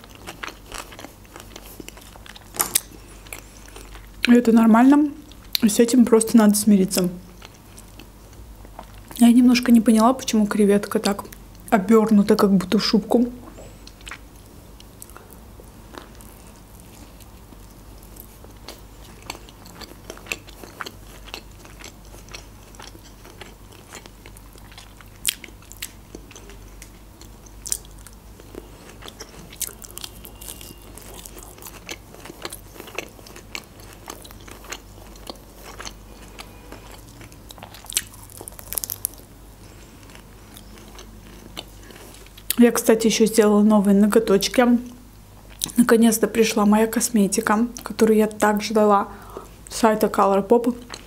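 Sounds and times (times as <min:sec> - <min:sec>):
person biting and chewing sushi: 0:00.0 - 0:04.2, 0:13.4 - 0:39.3
faint low hum: 0:00.0 - 0:51.0.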